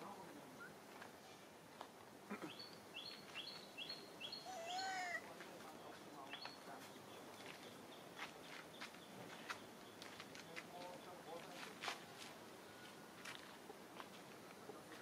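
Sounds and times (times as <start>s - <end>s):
bird chirps: 2.3s - 11.4s
drawn-out arching bird call: 4.2s - 5.3s.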